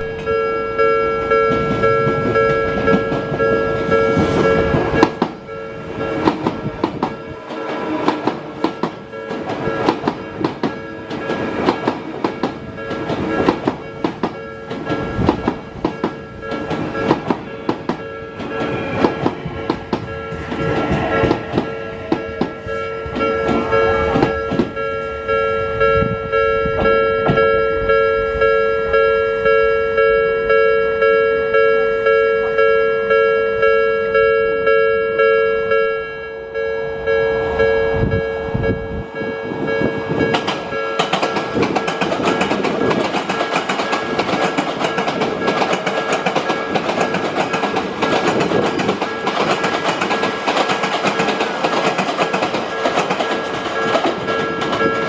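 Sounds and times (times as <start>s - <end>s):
level crossing alarm bell: 0.0s - 55.0s
low train rumble: 0.0s - 55.0s
train wheels clattering over rail joints: 1.4s - 24.8s, 40.1s - 55.0s.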